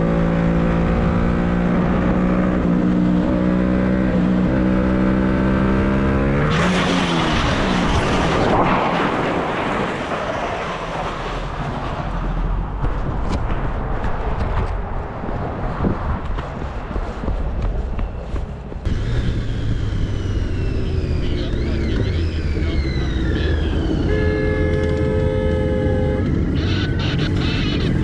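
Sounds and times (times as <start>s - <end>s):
motorcycle sliding on ground: 6.4s - 12.5s.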